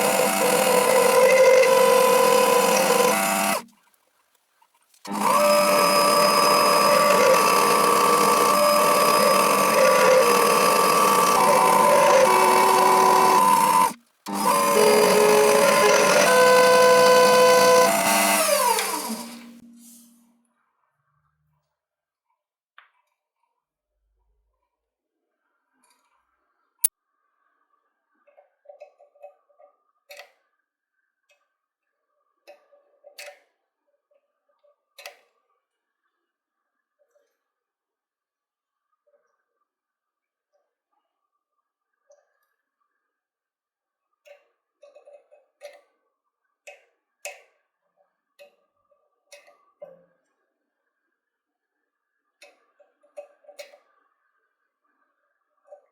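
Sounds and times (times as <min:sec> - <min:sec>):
small power tool motor whining: 0:00.0 - 0:03.7, 0:05.1 - 0:19.7.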